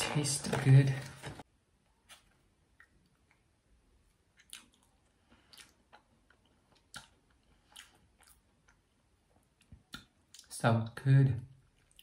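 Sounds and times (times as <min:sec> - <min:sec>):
faint wet chewing clicks: 0:02.1 - 0:10.5, 0:11.5 - 0:12.0.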